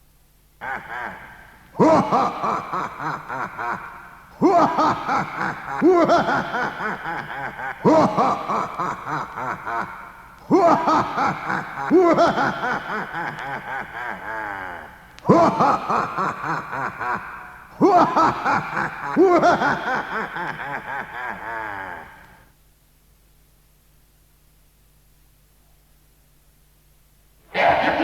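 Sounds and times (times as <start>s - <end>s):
recorded laughter chuckling: 0.6s - 22.5s, 27.5s - 28.0s.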